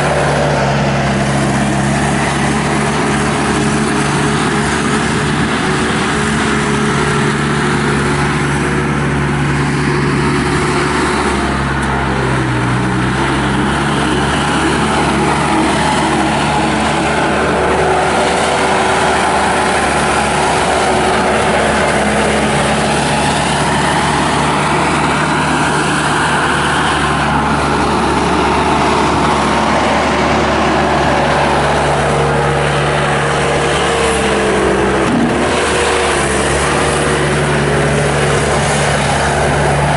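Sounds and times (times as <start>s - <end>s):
skid steer diesel engine running: 0.0s - 39.9s.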